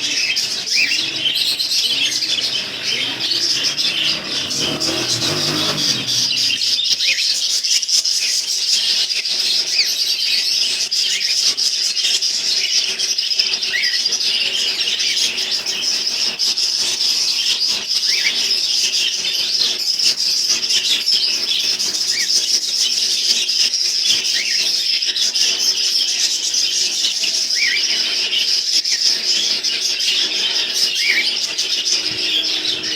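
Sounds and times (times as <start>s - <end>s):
flock of small birds chirping: 0.0s - 32.9s.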